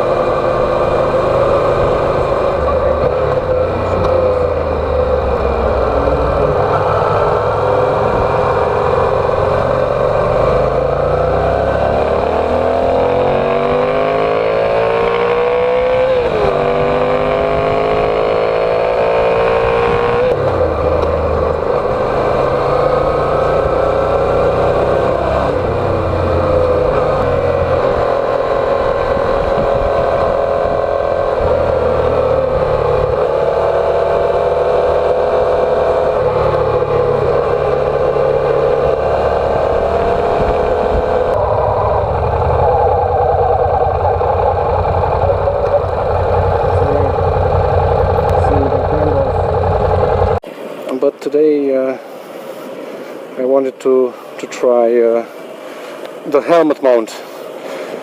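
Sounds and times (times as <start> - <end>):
motorcycle engine accelerating: 0.0 - 50.4.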